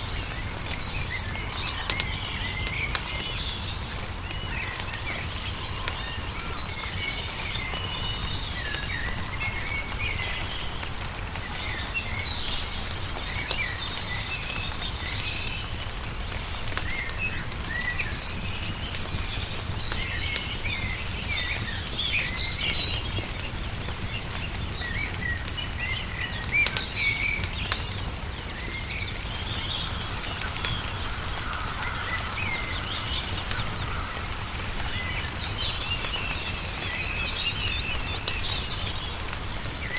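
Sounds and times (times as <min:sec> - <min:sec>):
small birds chirping: 0:00.0 - 0:39.9
wood fire crackling and popping: 0:00.0 - 0:39.9.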